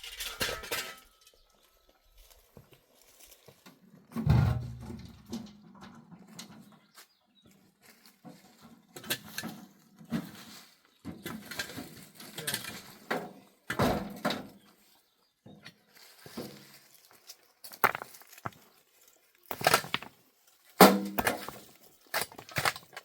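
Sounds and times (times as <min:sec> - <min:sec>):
knocks and thuds: 0:04.2 - 0:05.4.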